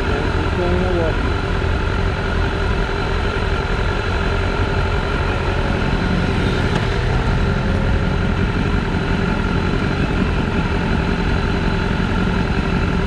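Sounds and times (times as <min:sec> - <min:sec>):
motorcycle engine running: 0:00.0 - 0:13.0
dense even noise: 0:04.5 - 0:10.2.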